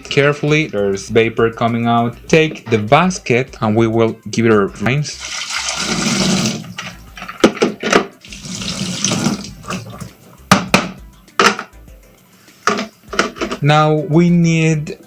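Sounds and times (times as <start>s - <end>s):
kitchen tap running: 5.1s - 10.6s
filter basket knocking and clattering: 6.7s - 8.2s, 9.1s - 11.7s, 12.7s - 13.7s.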